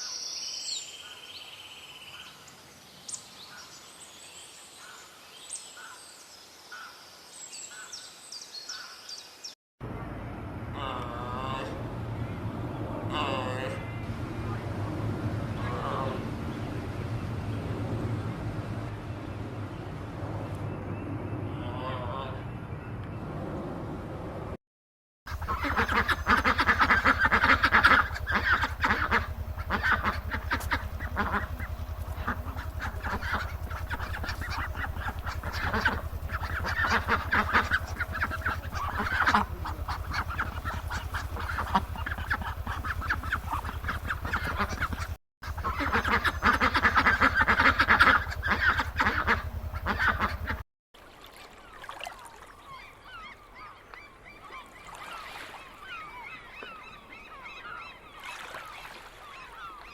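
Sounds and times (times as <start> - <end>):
low steady hum: 9.8 - 22.4, 25.3 - 50.6
waterfowl calling: 25.3 - 50.6.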